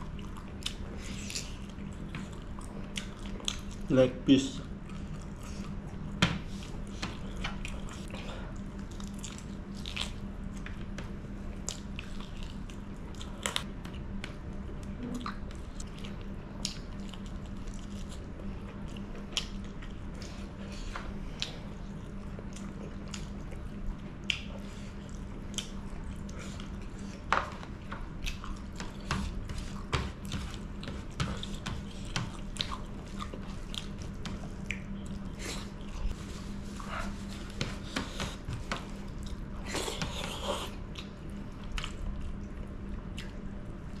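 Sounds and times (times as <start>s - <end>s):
wet chewing: 0.0s - 3.9s, 4.6s - 14.4s, 15.1s - 44.0s.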